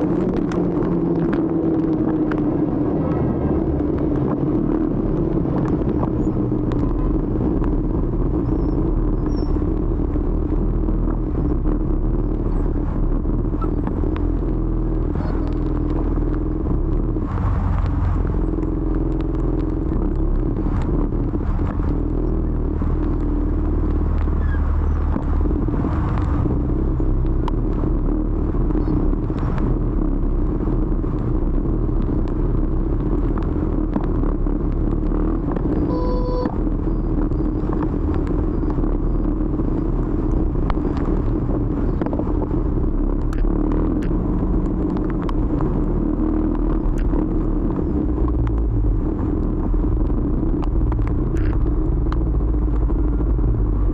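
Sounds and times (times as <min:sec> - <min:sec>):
motor scooter engine rumble: 0:00.0 - 0:53.9
road noise: 0:00.0 - 0:53.9.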